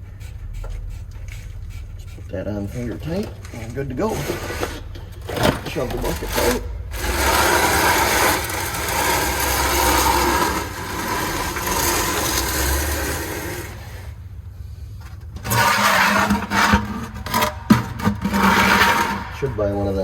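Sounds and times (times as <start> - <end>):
bucket scraping along floor: 0.0 - 20.0.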